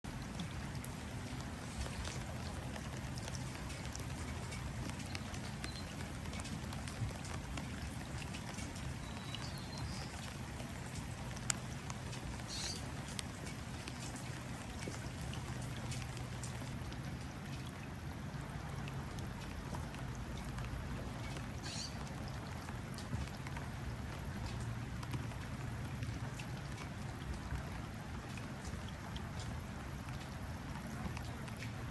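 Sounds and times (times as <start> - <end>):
rain pattering on water: 0.0 - 31.9
bird chirps: 21.6 - 22.0.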